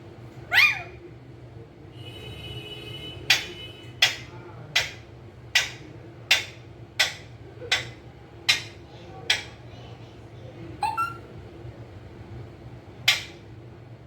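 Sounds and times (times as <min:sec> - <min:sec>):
parrot making sharp clicks: 0:05.6 - 0:09.6, 0:13.0 - 0:13.4.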